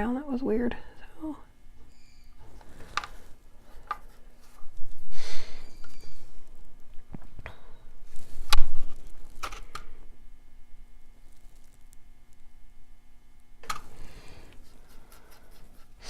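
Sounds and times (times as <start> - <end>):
rustling scrape: 8.0 - 9.4.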